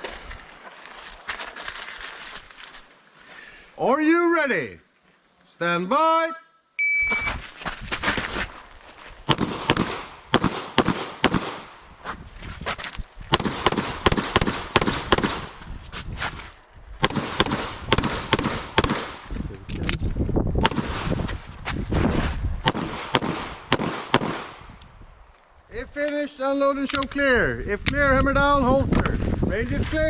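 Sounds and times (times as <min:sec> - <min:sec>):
pistol shots: 0:09.3 - 0:11.8, 0:13.3 - 0:15.5, 0:17.0 - 0:19.2, 0:20.6 - 0:21.1, 0:22.6 - 0:24.6.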